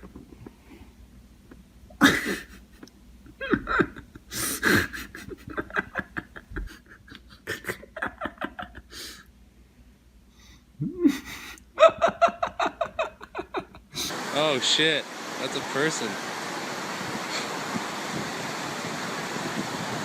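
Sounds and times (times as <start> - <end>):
person laughing: 2.0 - 9.2, 10.8 - 14.2.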